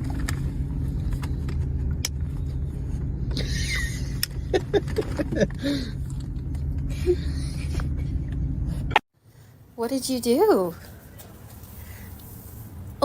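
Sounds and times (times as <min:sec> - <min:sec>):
low motor hum: 0:00.0 - 0:09.7.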